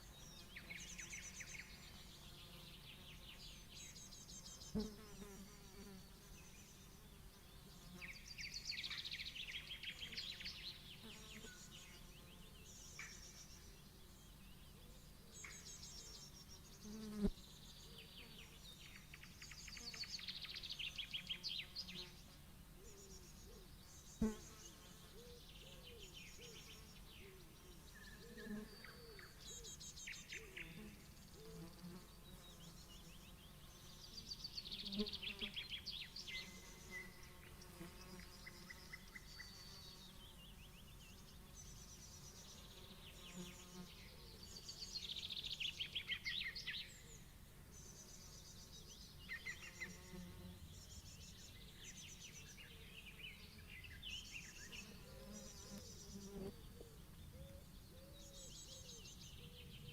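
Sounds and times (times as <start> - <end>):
birds singing: 22.8 - 59.9.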